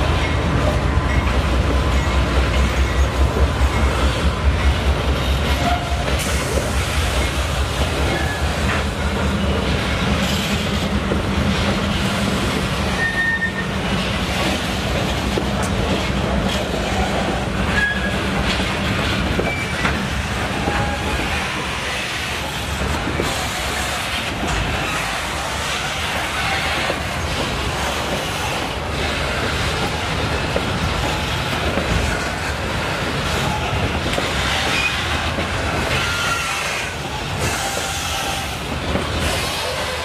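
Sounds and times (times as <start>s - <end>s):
train wheels clacking over rails: 0.0s - 40.0s
high wheel squeals: 8.1s - 8.7s, 12.9s - 13.9s, 17.7s - 18.3s, 19.4s - 22.0s, 35.8s - 38.6s.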